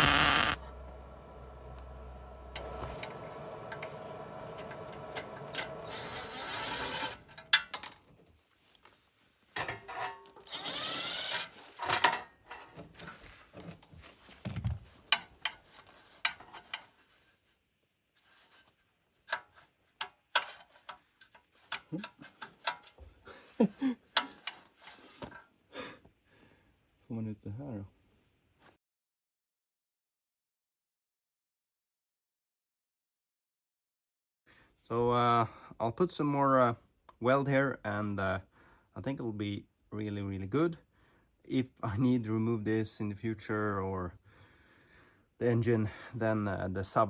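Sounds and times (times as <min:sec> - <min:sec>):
power tool on steel pipe: 0:00.0 - 0:07.4, 0:10.4 - 0:11.5
clicks and knocks of metal handling: 0:09.6 - 0:10.4, 0:19.3 - 0:23.1.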